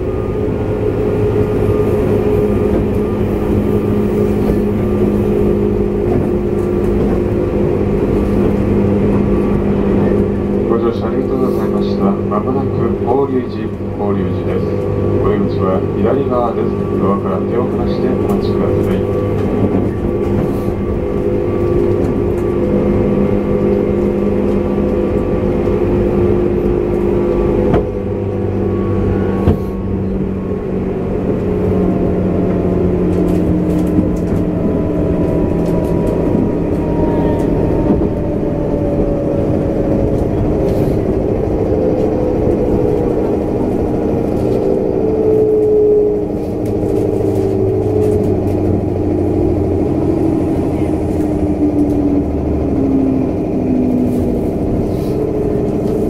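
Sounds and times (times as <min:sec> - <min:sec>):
electric train motor hum: 0:00.0 - 0:56.0
wheel and rail noise: 0:00.0 - 0:56.0.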